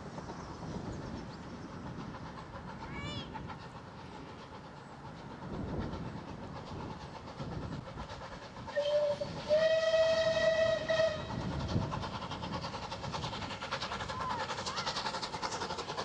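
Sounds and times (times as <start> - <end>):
train running rhythmically: 0.0 - 16.0
steam locomotive whistle: 8.7 - 11.4.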